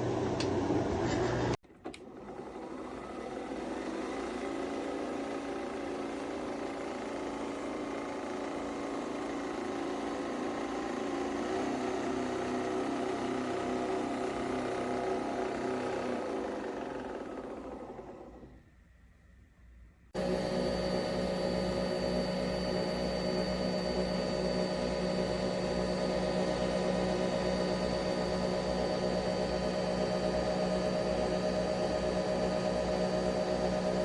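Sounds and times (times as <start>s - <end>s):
loud machine sound: 2.6s - 18.3s, 20.2s - 34.0s
appliance motor whirring: 20.2s - 34.0s.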